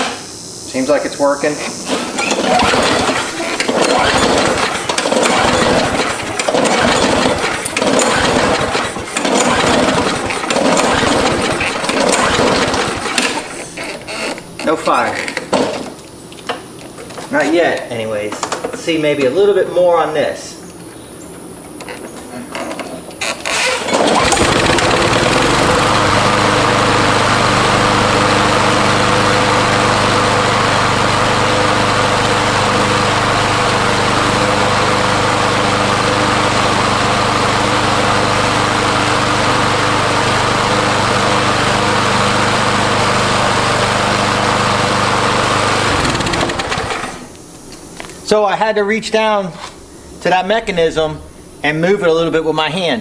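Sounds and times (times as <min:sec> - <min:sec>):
lawn mower engine running: 0:00.0 - 0:17.6, 0:23.2 - 0:48.1
pull starter: 0:01.5 - 0:16.0, 0:22.6 - 0:47.4.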